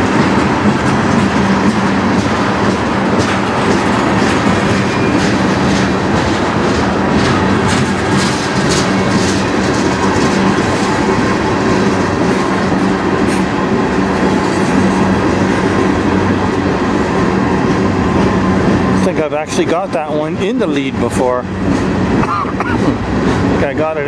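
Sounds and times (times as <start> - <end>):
steel wheels rumbling on rails: 0.0 - 24.0
wheel clicks over rail joints: 0.8 - 11.1.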